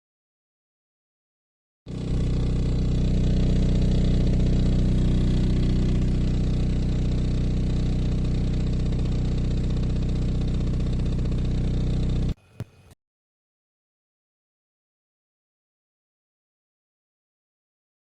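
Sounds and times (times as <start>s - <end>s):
motor humming: 1.9s - 13.0s.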